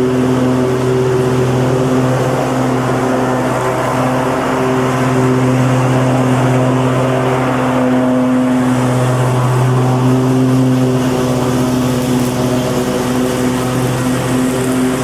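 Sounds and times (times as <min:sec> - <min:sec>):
lawn mower engine running: 0:00.0 - 0:15.0.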